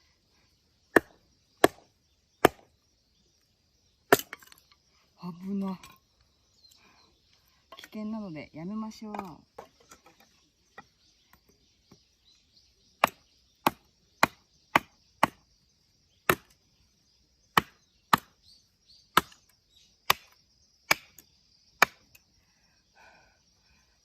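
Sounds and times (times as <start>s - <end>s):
axe chopping wood: 0.9s - 2.7s, 4.1s - 4.6s, 13.0s - 15.4s, 16.2s - 16.6s, 17.5s - 18.4s, 19.1s - 21.2s, 21.8s - 22.2s.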